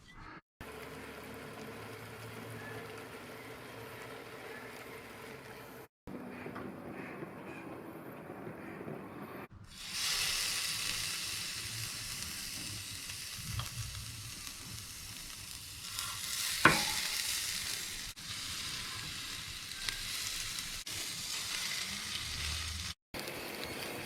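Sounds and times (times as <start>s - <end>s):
meat sizzling on a barbecue: 0.7s - 5.6s, 9.6s - 24.0s.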